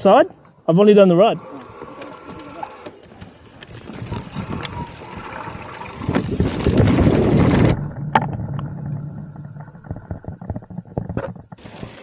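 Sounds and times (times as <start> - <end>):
bike tyre roar: 0.8 - 12.0
sharp clicks and rattles: 1.5 - 12.0
wind rush on microphone: 3.6 - 12.0
low steady hum: 4.6 - 11.5.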